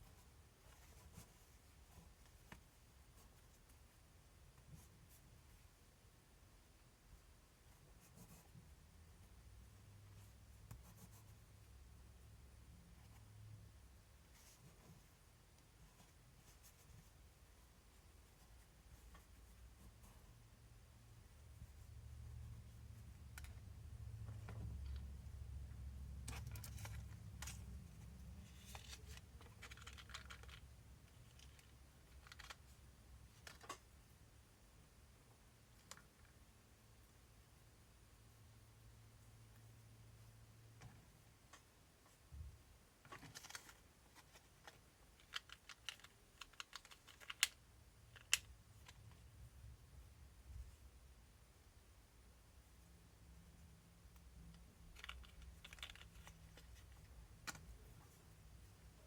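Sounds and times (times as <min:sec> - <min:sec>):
steady low hum: 0:08.4 - 0:29.5
small parts clicking and scraping: 0:26.2 - 0:27.8, 0:28.4 - 0:33.8, 0:43.0 - 0:49.2, 0:54.5 - 0:57.9.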